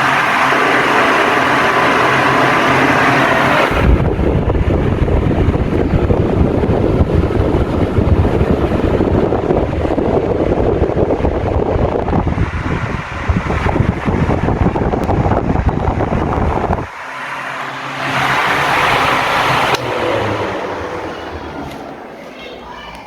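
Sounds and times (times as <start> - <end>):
wind buffeting microphone: 0.0 - 17.0
table fan whooshing: 0.0 - 22.4.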